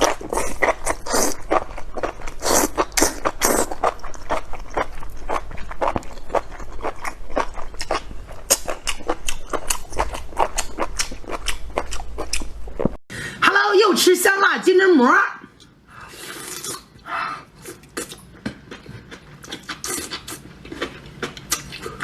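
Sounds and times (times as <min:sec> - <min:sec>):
close-miked wet chewing: 0:00.0 - 0:12.5.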